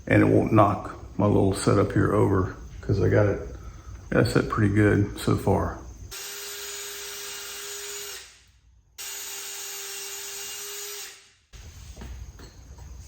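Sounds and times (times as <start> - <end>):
power drill whining: 6.1 - 11.3.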